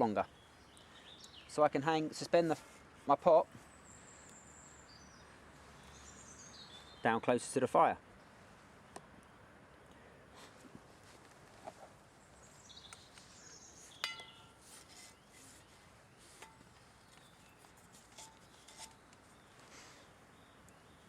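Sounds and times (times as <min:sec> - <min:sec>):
metallic clink: 0:14.0 - 0:14.5.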